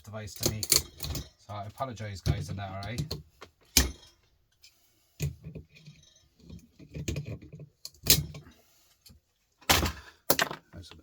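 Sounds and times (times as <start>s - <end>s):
electronic parts and tools clicking: 0.1s - 4.3s.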